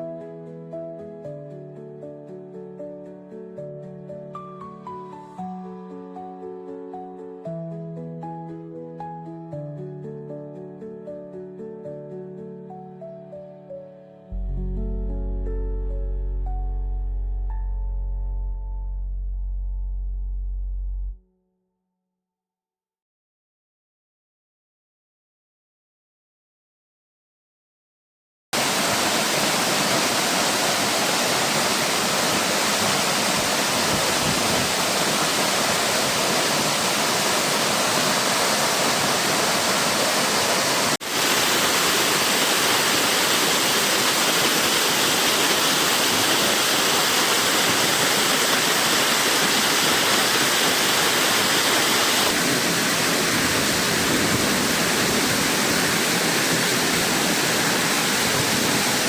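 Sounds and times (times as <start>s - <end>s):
waterfall rushing: 28.6s - 59.0s.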